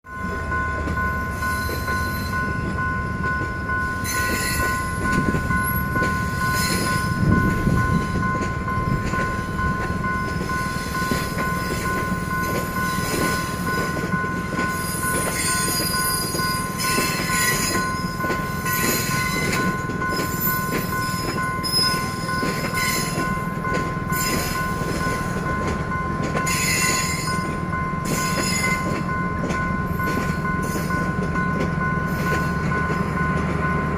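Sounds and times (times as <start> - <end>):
train rumbling past: 0.1 - 33.9
two-tone crossing alarm: 0.1 - 33.9
high wheel squeals: 3.7 - 8.3, 14.7 - 23.4, 26.4 - 29.0.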